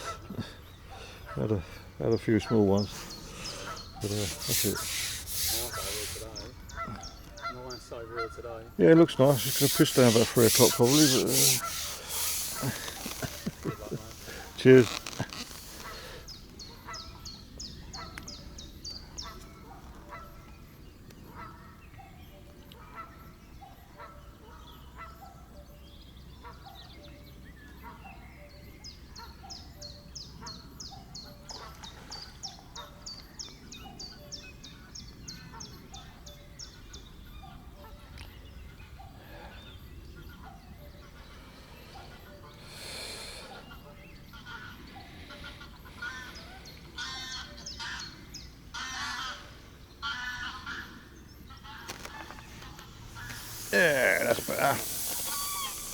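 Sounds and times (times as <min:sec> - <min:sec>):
birds honking: 0:00.0 - 0:17.0, 0:43.4 - 0:55.9
rapid high-pitched trilling: 0:53.2 - 0:55.9.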